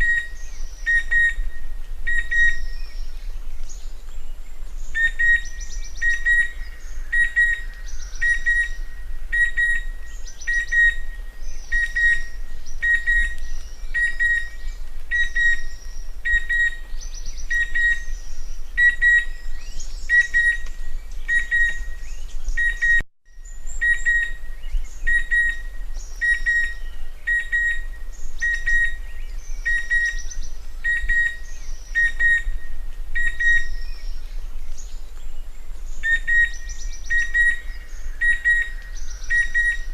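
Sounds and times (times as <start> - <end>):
cuckoo calling whistled notes: 0.0 - 1.5, 2.1 - 2.9, 9.4 - 16.8, 18.8 - 19.4, 20.1 - 20.7, 21.3 - 23.0, 25.0 - 29.0, 29.6 - 32.6, 33.2 - 34.0, 38.2 - 39.9
other birds chirping: 0.0 - 39.9.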